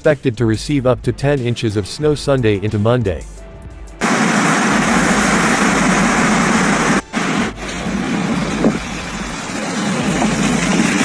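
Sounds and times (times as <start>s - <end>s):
rushing hiss: 4.0s - 11.0s
vehicle engines running: 4.0s - 11.0s.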